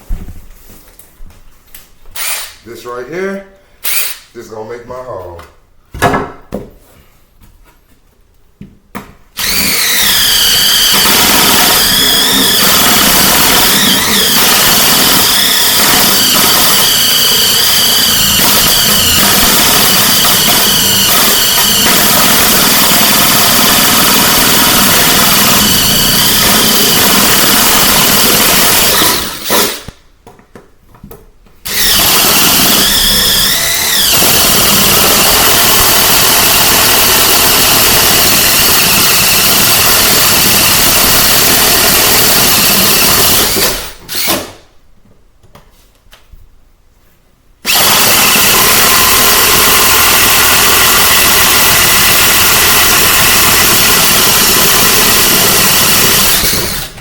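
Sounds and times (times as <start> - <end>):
power drill cutting flooring: 2.1 - 2.6, 3.8 - 4.3, 9.4 - 30.0, 31.6 - 44.6, 47.6 - 57.0.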